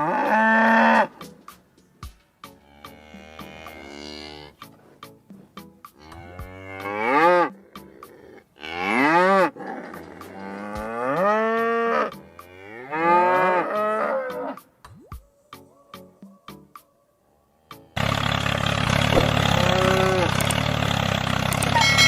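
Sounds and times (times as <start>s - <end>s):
cows mooing: 0.0s - 1.4s, 2.5s - 4.8s, 5.9s - 14.7s, 19.2s - 20.6s.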